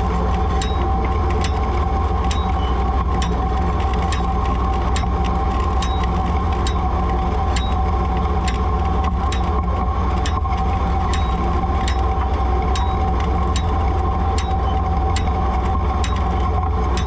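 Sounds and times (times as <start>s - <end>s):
mechanical whine: 0.0s - 17.0s
tractor engine running: 0.0s - 17.0s
sharp mechanical clicks: 2.3s - 9.6s.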